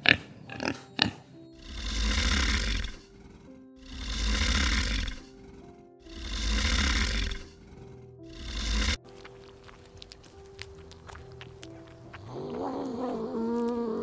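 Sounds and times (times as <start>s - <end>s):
soft background music: 0.0s - 14.0s
alligator bellowing: 1.6s - 9.0s.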